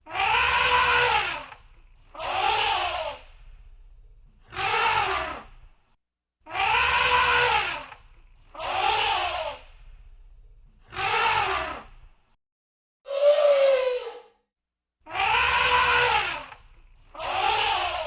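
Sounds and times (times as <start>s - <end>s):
elephant trumpeting: 0.1s - 1.5s, 6.5s - 7.8s, 15.2s - 16.5s.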